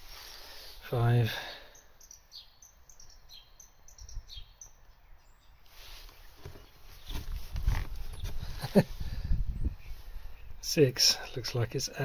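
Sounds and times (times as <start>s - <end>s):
small bird chirping: 1.6s - 8.6s, 9.5s - 10.6s.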